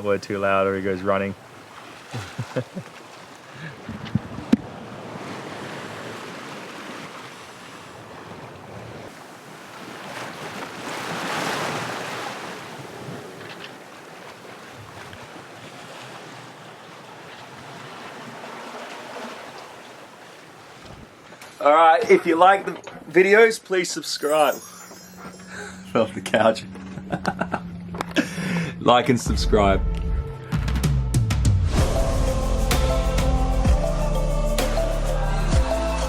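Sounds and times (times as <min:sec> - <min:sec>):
sea water rushing around boat: 0:00.0 - 0:29.6, 0:31.7 - 0:36.0
wind buffeting microphone: 0:03.8 - 0:05.2.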